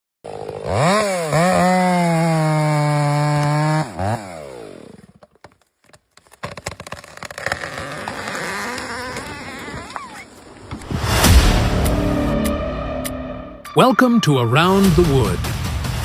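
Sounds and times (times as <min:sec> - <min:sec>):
chainsaw engine revving: 0:00.3 - 0:05.2, 0:07.1 - 0:10.0
irregular cracking: 0:05.2 - 0:10.2.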